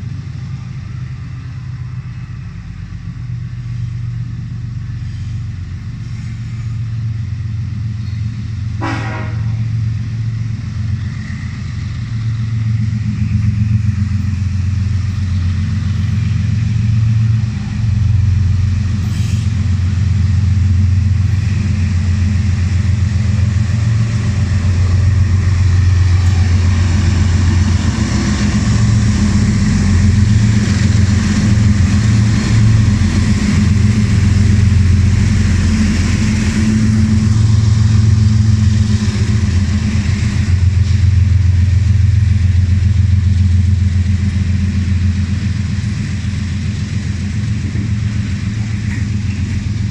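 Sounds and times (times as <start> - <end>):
locomotive engine rumbling: 0.0 - 49.9
wheel and rail noise: 0.0 - 49.9.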